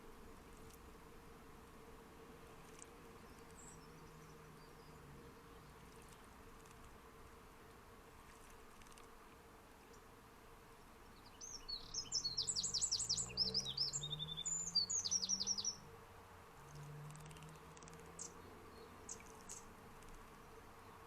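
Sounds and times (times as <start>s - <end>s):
songbird twittering and trilling: 3.2s - 5.8s, 11.0s - 15.8s, 17.1s - 21.0s.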